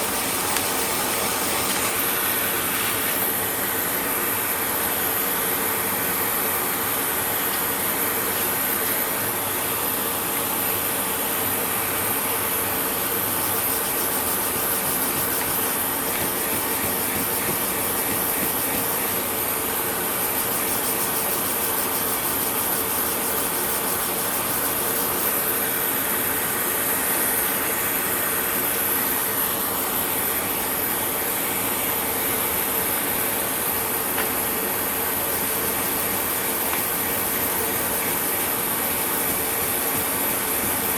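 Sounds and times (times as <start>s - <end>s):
steady sanding: 0.0s - 3.2s, 13.4s - 19.4s, 35.3s - 40.9s.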